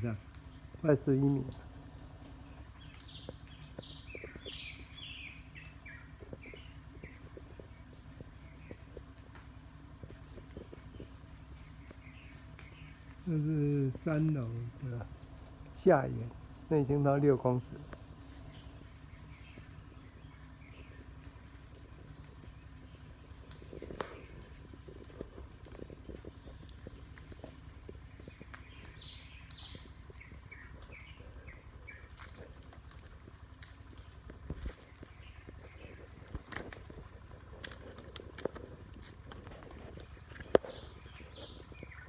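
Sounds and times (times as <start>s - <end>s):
high-pitched insect chorus: 0.0s - 42.0s
small ticks: 0.0s - 42.0s
faint chirps: 10.8s - 15.1s.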